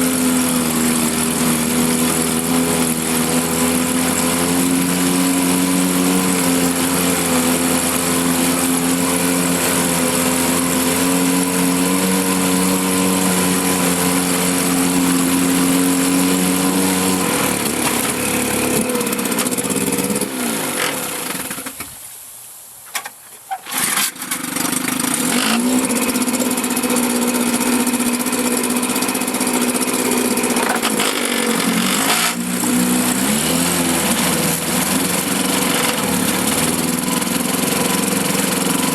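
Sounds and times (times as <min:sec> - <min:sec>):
outboard motor running: 0:00.0 - 0:21.8, 0:23.6 - 0:38.9.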